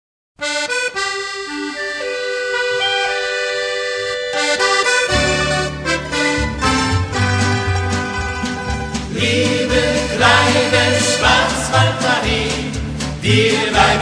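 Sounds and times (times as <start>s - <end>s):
accordion melody: 0.4s - 14.0s
bass and beat: 4.7s - 14.0s.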